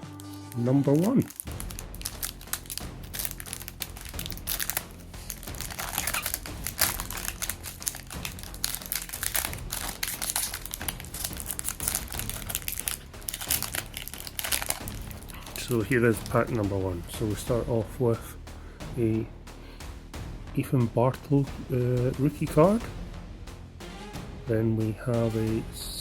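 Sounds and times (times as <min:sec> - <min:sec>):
foil wrapper crinkling: 0:00.0 - 0:16.8.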